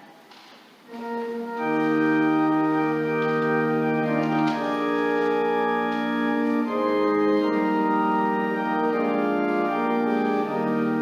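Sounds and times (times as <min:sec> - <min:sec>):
church organ chords: 0:00.9 - 0:11.0.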